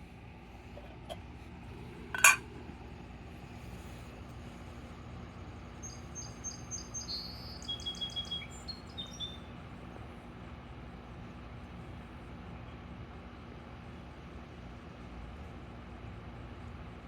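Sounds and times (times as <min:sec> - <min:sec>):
low hum and rumble: 0:00.0 - 0:07.8
small bird chirping: 0:05.8 - 0:09.5.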